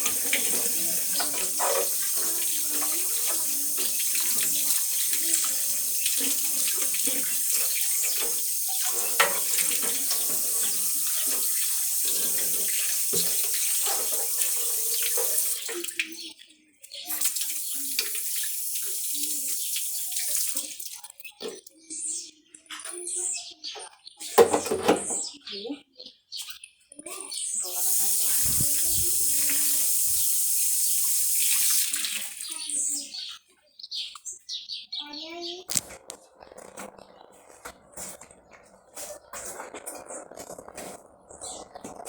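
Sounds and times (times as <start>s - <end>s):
items knocking in sink: 0.0s - 5.1s, 6.1s - 15.4s, 24.4s - 25.2s
tap water running into sink: 0.0s - 16.2s, 17.1s - 21.0s, 27.6s - 33.0s.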